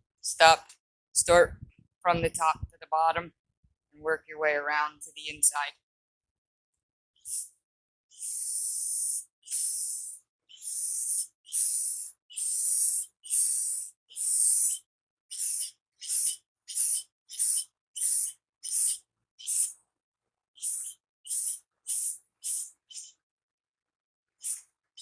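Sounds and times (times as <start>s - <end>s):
aerosol spray can hissing: 7.2s - 7.5s, 8.2s - 14.8s, 15.4s - 19.8s, 20.6s - 23.1s, 24.4s - 24.6s.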